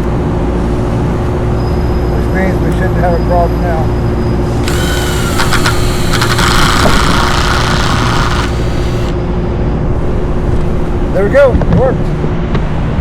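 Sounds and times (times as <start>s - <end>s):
steady low hum: 3.8s - 11.1s
cordless drill whining: 4.5s - 9.2s
sharp clicks: 4.6s - 9.2s.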